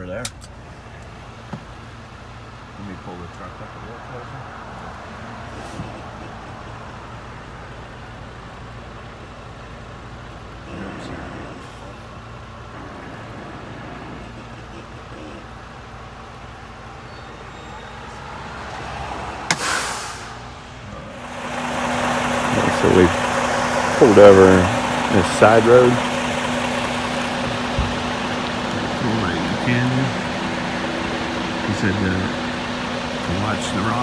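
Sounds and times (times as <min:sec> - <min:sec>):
diesel truck engine running: 0:00.0 - 0:34.0
short burst of air hiss: 0:19.5 - 0:20.4.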